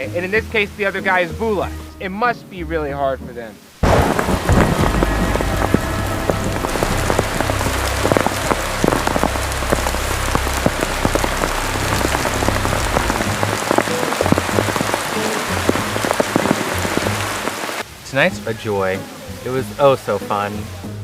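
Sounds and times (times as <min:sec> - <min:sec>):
heavy rain hissing: 0:03.6 - 0:21.0
low rumble: 0:03.8 - 0:17.6
large raindrops tapping: 0:03.8 - 0:20.4.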